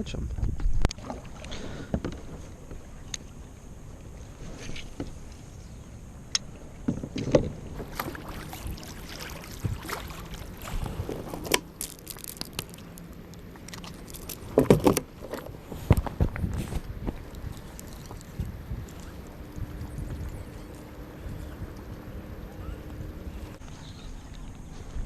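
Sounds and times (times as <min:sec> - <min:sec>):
light wind: 0:00.0 - 0:25.0.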